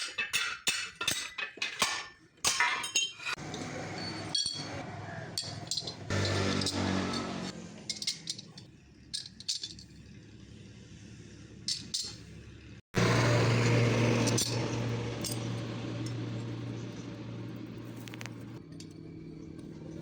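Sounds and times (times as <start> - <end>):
light metallic clinks: 2.7 - 4.8, 5.4 - 7.3, 7.9 - 10.1.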